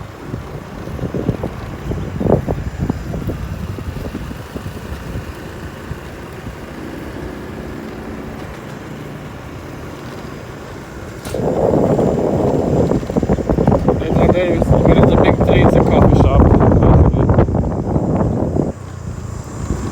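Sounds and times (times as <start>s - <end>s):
motorcycle engine running: 0.0s - 19.9s
loud burst of noise: 11.1s - 18.0s.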